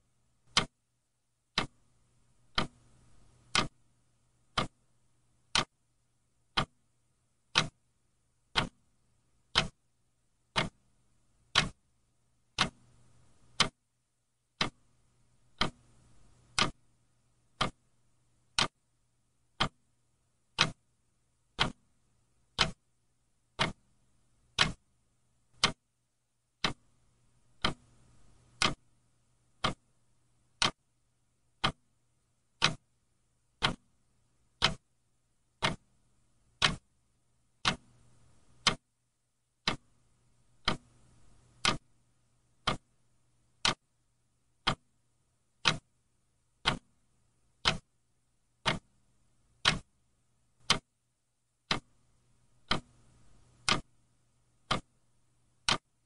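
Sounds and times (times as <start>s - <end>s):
faint low hum: 0.0s - 56.0s
clock ticking: 0.5s - 0.8s, 1.5s - 3.8s, 4.4s - 4.8s, 5.4s - 5.7s, 6.5s - 6.8s, 7.4s - 7.8s, 8.5s - 9.8s, 10.5s - 10.8s, 11.5s - 11.8s, 12.5s - 13.8s, 14.5s - 17.9s, 18.5s - 18.8s, 19.5s - 20.8s, 21.5s - 21.9s, 22.5s - 22.9s, 23.5s - 23.9s, 24.5s - 24.9s, 25.5s - 25.9s, 26.6s - 28.9s, 29.5s - 29.9s, 30.5s - 30.9s, 31.6s - 31.9s, 32.5s - 33.0s, 33.6s - 34.9s, 35.5s - 36.9s, 37.6s - 38.9s, 39.6s - 40.0s, 40.6s - 41.9s, 42.6s - 43.0s, 43.6s - 43.8s, 44.6s - 44.9s, 45.6s - 45.9s, 46.6s - 46.9s, 47.6s - 48.0s, 48.6s - 49.0s, 49.6s - 49.9s, 50.6s - 50.9s, 51.6s - 52.0s, 52.6s - 54.0s, 54.6s - 55.0s, 55.6s - 56.0s.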